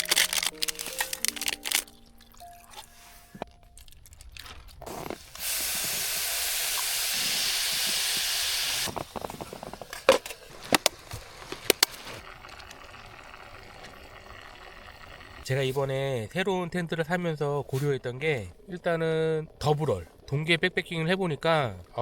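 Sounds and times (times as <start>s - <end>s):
loud steady hiss: 4.9s - 9.7s.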